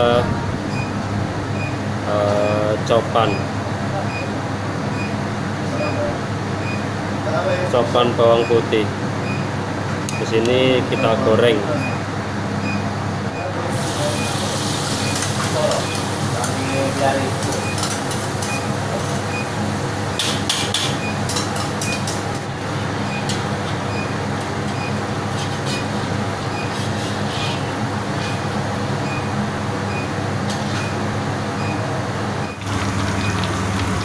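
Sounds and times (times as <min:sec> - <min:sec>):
garlic sizzling in oil: 0:13.7 - 0:19.9.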